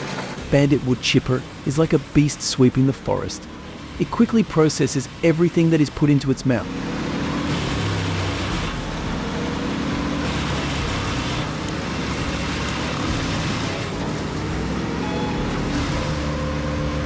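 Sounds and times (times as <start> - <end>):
wood chipper engine running: 0.0 - 17.0.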